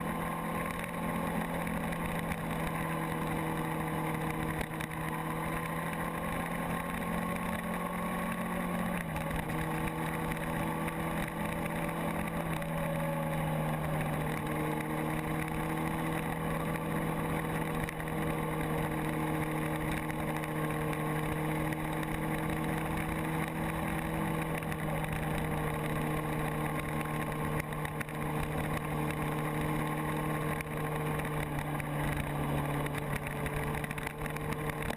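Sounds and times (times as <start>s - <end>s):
motorcycle engine cruising: 0.0s - 34.9s.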